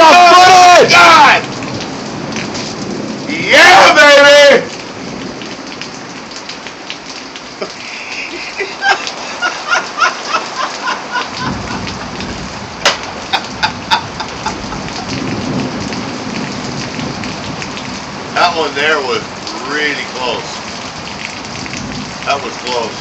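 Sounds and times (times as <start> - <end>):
heavy rain falling: 0.0 - 23.0
sharp drips and splashes: 0.0 - 23.0
low rumble of thunder: 11.3 - 19.6, 20.5 - 23.0.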